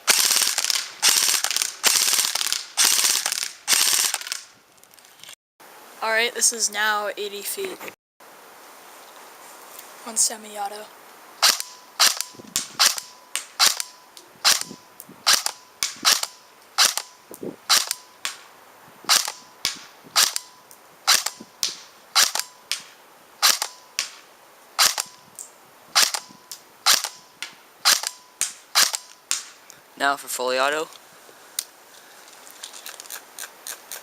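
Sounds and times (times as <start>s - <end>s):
airsoft rifle single shots: 11.4s - 17.1s, 17.7s - 18.4s, 19.1s - 20.5s, 21.1s - 24.2s, 24.8s - 25.2s, 26.0s - 29.6s
faint steady tone: 11.6s - 19.6s, 20.4s - 28.4s.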